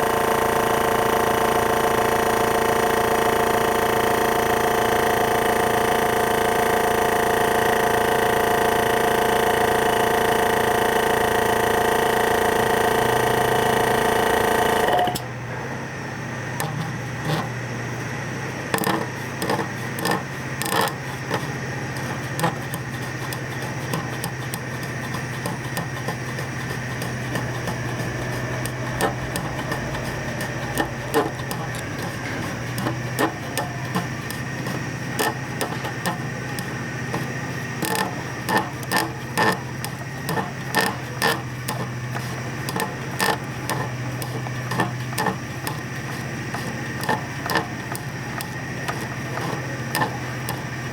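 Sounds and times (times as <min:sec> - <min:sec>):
air compressor humming: 0:00.0 - 0:50.9
sharp clicks and knocks: 0:16.6 - 0:17.6, 0:18.7 - 0:50.9.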